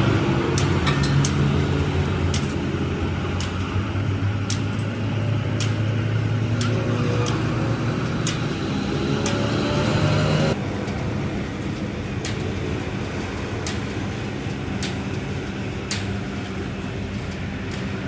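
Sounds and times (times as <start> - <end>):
machine motor humming: 0.0 - 18.0
sharp clicks: 3.4 - 10.6.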